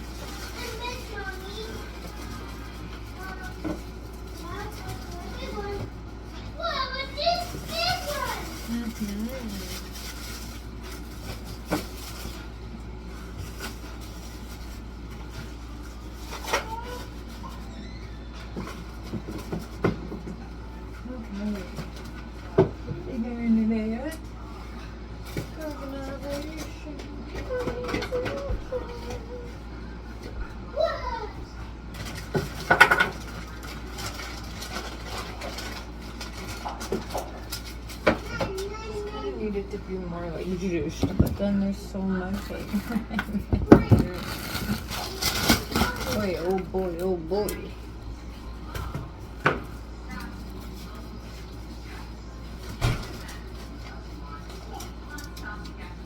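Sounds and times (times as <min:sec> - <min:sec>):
food containers clattering: 0:31.9 - 0:38.7, 0:40.3 - 0:47.7.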